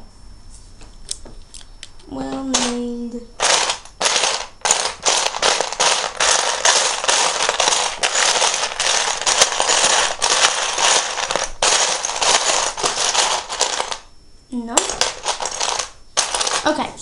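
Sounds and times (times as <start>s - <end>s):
plastic bricks clattering: 2.5s - 2.8s, 3.4s - 14.1s, 14.8s - 16.8s.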